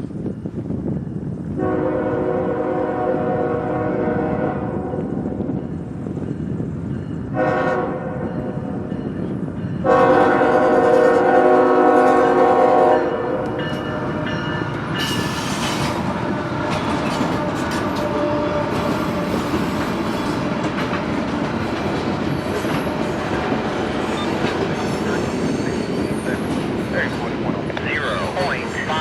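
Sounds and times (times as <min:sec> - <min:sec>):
freight train horn: 0:01.6 - 0:05.2, 0:07.3 - 0:08.5, 0:09.8 - 0:19.8
wheel clatter over rail joints: 0:13.6 - 0:28.8
high wheel squeals: 0:14.3 - 0:15.9.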